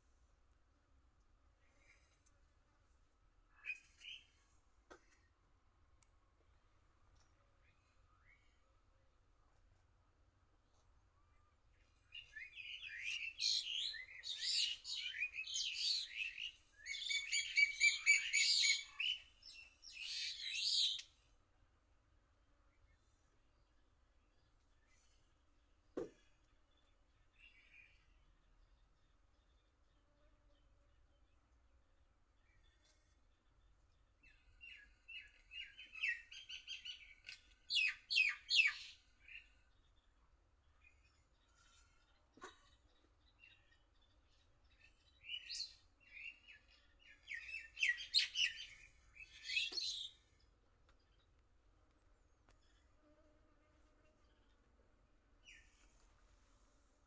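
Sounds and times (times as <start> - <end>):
songbird singing: 11.3 - 21.3, 26.0 - 53.2, 53.9 - 57.0.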